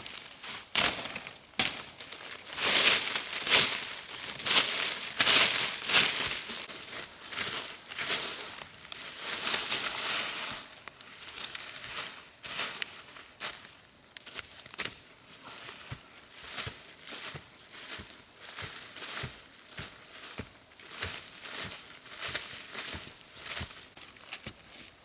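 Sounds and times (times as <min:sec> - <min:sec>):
rustling and crackling scrapes: 0:00.0 - 0:12.2.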